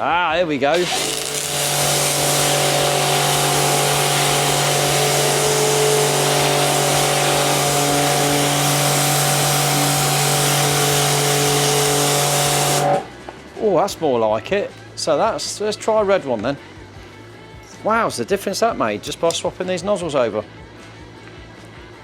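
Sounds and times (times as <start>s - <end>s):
water jet hissing: 0.7s - 13.1s
pressure washer motor hum: 0.7s - 13.2s.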